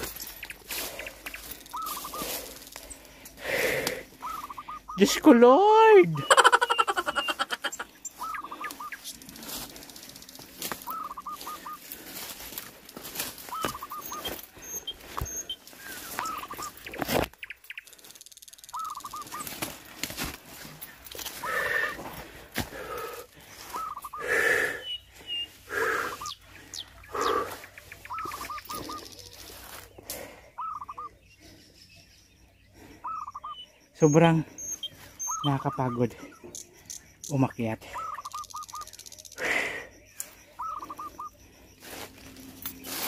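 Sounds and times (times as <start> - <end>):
bird calling: 0.0 - 43.0.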